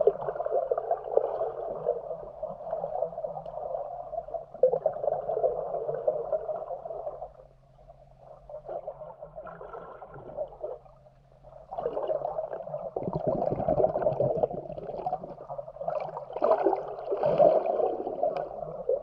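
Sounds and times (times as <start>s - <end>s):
underwater rush and gurgle: 0.0s - 19.0s.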